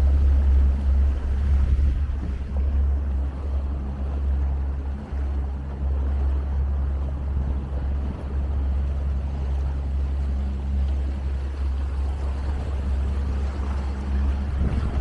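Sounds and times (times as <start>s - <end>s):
wind noise: 0.0s - 3.0s, 14.1s - 15.0s
motorboat engine drone: 0.0s - 15.0s
water wash: 0.0s - 15.0s.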